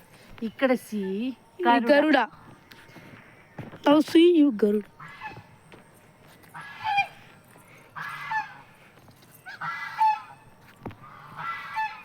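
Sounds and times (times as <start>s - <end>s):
geese honking: 5.0s - 5.5s, 6.5s - 12.0s.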